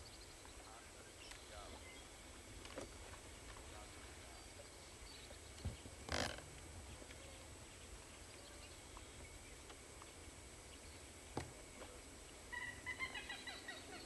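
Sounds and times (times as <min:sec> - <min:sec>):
bird chattering calls: 0:12.4 - 0:14.0.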